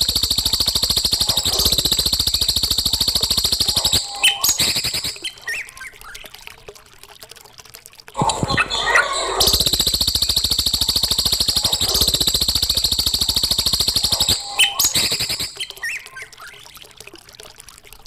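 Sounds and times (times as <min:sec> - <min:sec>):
songbird rattling trill: 0:00.0 - 0:05.9, 0:08.4 - 0:16.5
bird chirps and calls: 0:03.5 - 0:05.9, 0:13.9 - 0:16.6.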